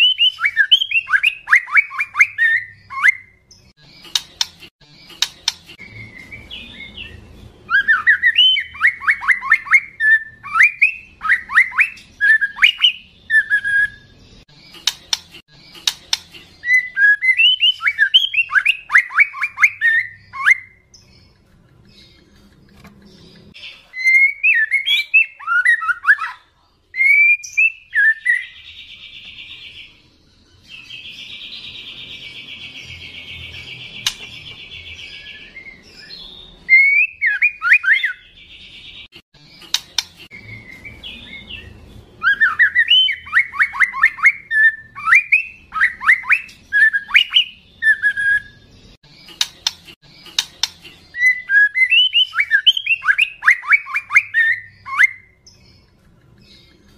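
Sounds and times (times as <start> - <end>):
bird singing whistled phrases: 0.0 - 3.4, 5.9 - 14.1, 16.6 - 20.9, 23.9 - 28.6, 35.1 - 38.2, 42.2 - 48.6, 51.1 - 55.4.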